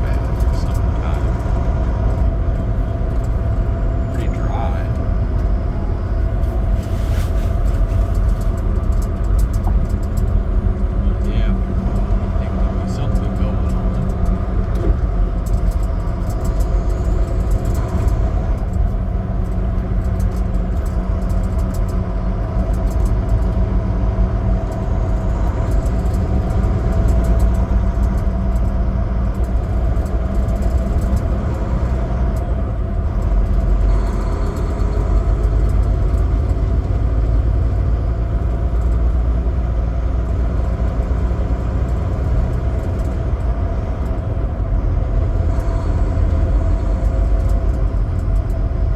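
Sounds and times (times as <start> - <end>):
road noise: 0.0 - 48.9
truck diesel engine rumbling: 0.0 - 48.9.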